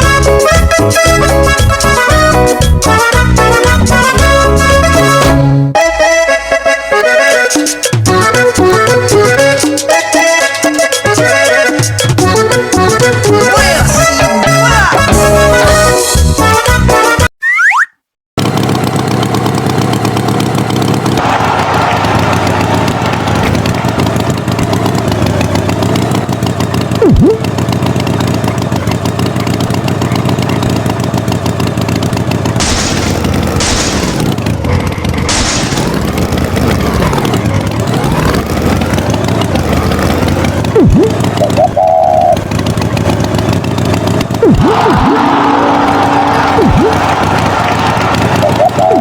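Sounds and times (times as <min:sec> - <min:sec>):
engine running: 0:00.0 - 0:16.1, 0:18.4 - 0:49.0
sharp hits: 0:32.4 - 0:41.5.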